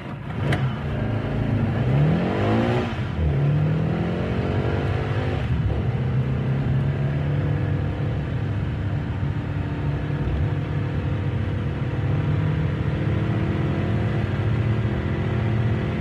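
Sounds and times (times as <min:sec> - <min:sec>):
sports car engine revving: 0:00.3 - 0:08.6.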